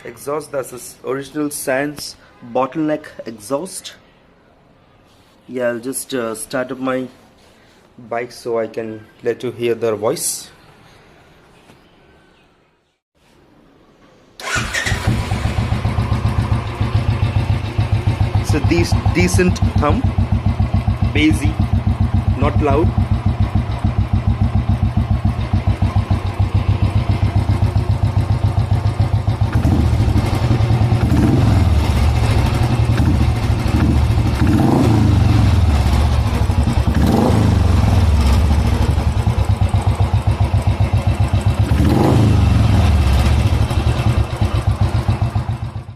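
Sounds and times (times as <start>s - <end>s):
motorcycle engine idling and revving: 14.4s - 45.9s.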